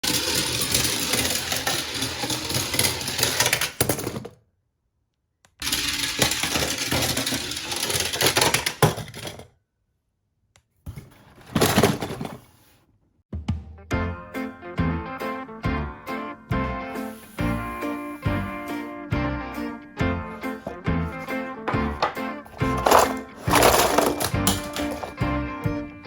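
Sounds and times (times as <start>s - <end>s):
toy cars rattling down plastic track: 0.0s - 4.4s, 5.6s - 9.5s, 11.4s - 12.4s, 20.6s - 25.2s.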